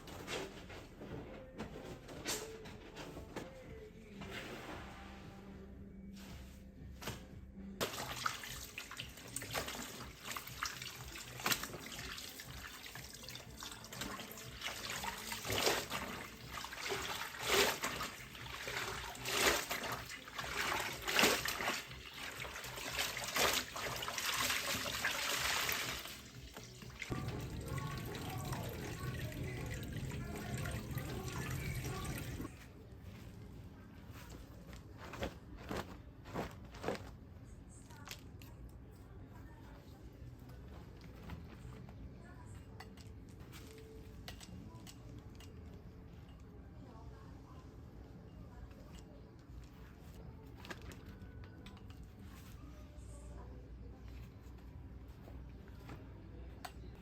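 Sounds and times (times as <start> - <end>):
tap water splashing into sink: 26.6 - 32.4.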